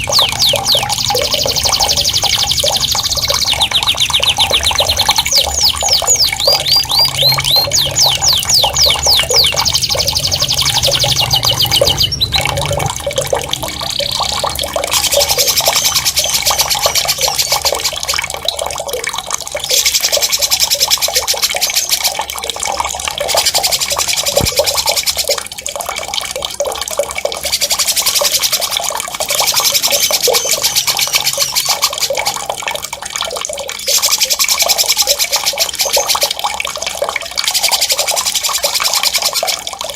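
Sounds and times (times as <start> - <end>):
songbird trilling: 0.0 - 12.9
running water: 0.0 - 39.9.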